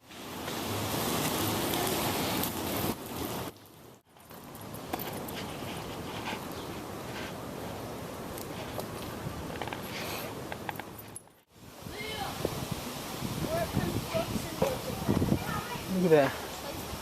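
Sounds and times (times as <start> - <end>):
heavy rain pouring: 0.0 - 4.0, 11.5 - 17.0.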